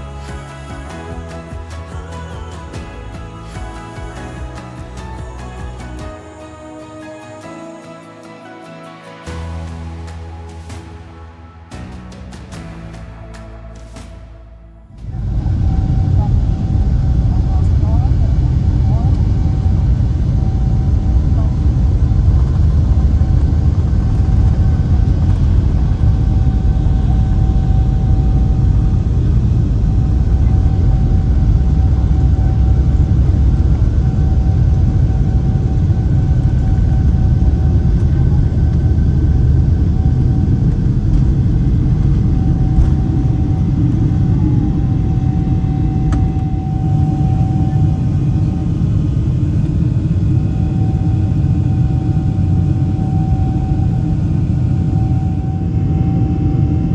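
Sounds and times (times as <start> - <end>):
jet engine rumble in cabin: 15.0 - 56.9
jet engine whine: 15.0 - 56.9.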